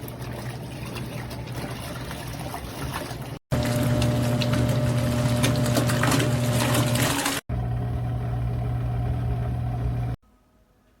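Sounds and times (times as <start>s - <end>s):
water churning: 0.0s - 7.4s
washing machine motor humming: 0.0s - 10.2s.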